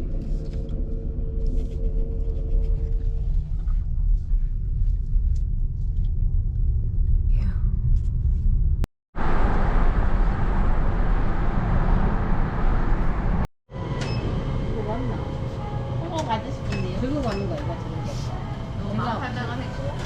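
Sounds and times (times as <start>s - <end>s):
road and tyre noise: 9.2s - 16.0s.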